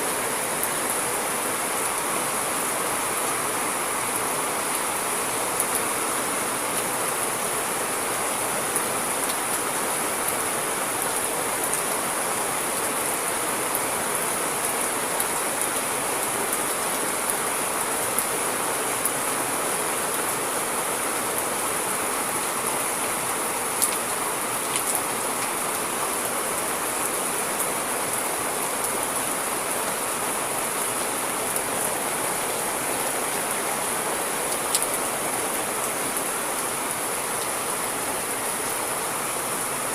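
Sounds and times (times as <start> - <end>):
light raindrop ticks: 23.8 - 24.1, 24.7 - 25.8, 34.5 - 35.0.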